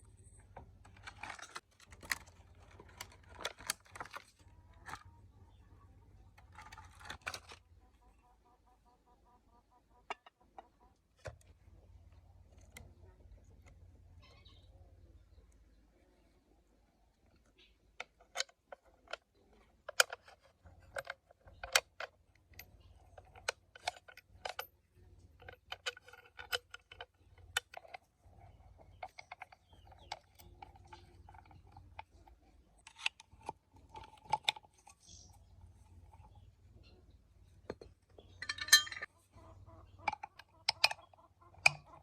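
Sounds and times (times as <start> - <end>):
metal parts clicking and clinking: 0.0 - 5.2, 17.3 - 42.0.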